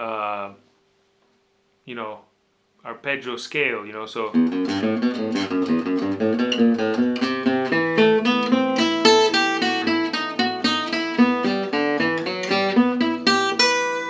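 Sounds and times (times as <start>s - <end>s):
acoustic guitar picking fast notes: 4.2s - 14.0s.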